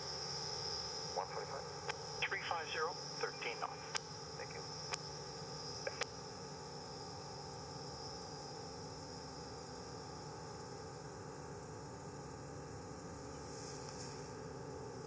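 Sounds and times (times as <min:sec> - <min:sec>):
radio hiss and static: 0:01.1 - 0:05.0, 0:05.7 - 0:06.1
short radio clicks: 0:05.8 - 0:06.1.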